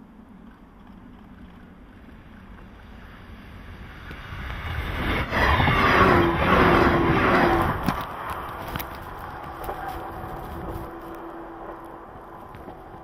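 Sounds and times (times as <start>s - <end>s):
electric train passing: 0.0s - 13.0s.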